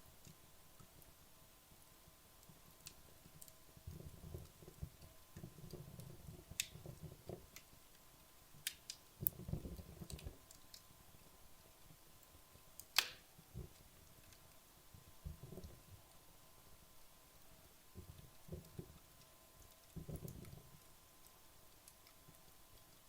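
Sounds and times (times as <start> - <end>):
fire crackles and pops: 0.0 - 23.0
logs burning in a fireplace: 0.0 - 23.0
low rumble of flames: 0.0 - 23.0.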